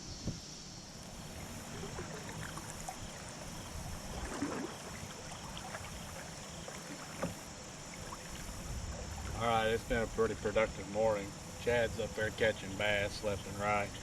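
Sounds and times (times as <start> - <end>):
river water rushing: 1.0 - 9.4.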